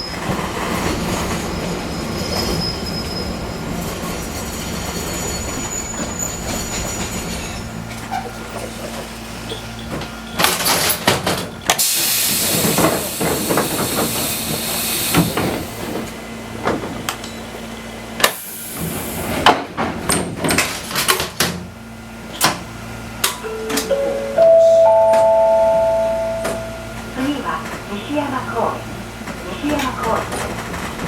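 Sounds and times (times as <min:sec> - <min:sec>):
rising four-note chime: 0:23.4 - 0:27.2.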